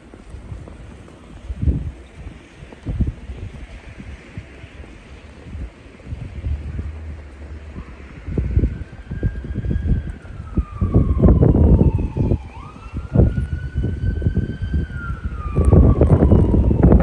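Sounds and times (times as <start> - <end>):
wind buffeting microphone: 0.0 - 17.0
emergency siren wailing: 5.1 - 17.0.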